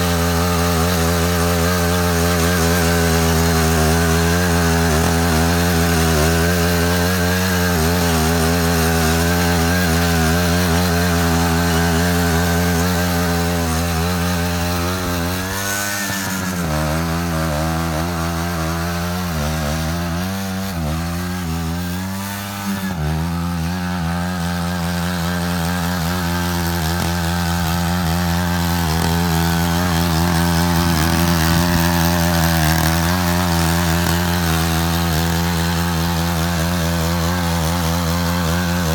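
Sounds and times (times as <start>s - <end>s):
walking tractor engine running: 0.0s - 38.9s.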